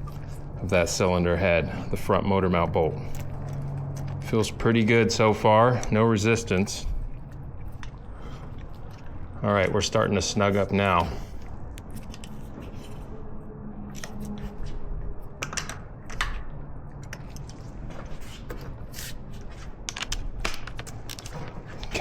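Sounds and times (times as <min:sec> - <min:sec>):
low steady hum: 0:00.0 - 0:22.0
metallic clicks and scrapes: 0:11.8 - 0:13.2, 0:13.9 - 0:22.0.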